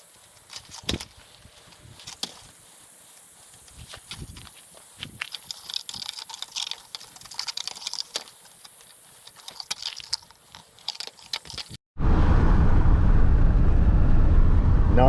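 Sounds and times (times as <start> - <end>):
small clicks and crunches: 0.0 - 11.8.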